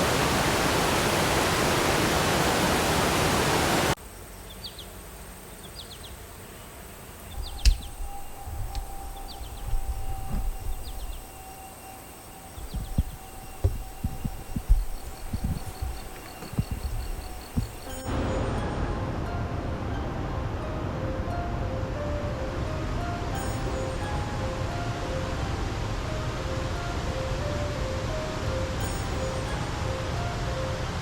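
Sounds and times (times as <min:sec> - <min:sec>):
water rushing: 0:00.0 - 0:04.0, 0:07.0 - 0:31.0
bird chirping: 0:04.1 - 0:18.7
low thumps: 0:07.4 - 0:11.6, 0:12.4 - 0:18.2.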